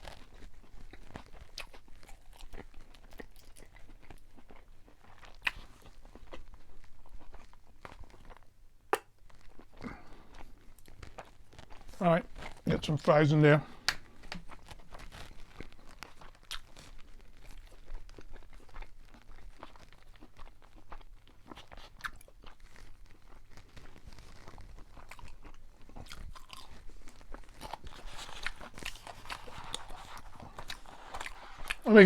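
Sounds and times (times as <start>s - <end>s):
person chewing crunchy food: 0.0s - 32.0s.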